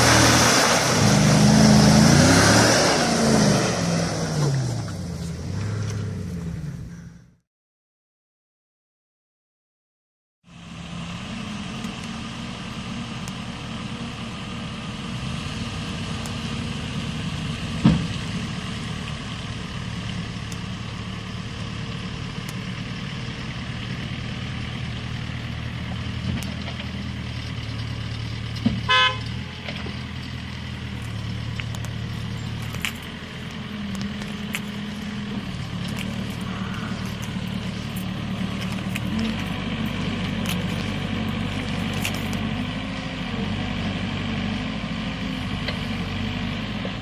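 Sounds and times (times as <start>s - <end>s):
vehicle engine running: 0.0s - 7.3s, 10.5s - 47.0s
car horn honk: 28.9s - 29.4s.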